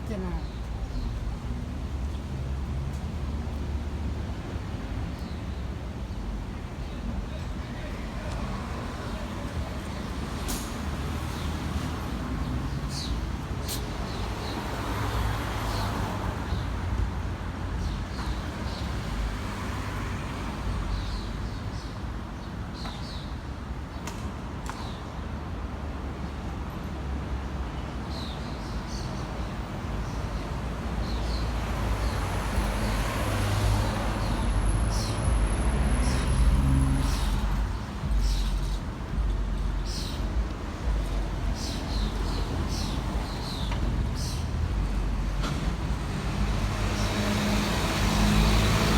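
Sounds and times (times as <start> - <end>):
passing vehicles engine rumble: 30.8 - 48.9.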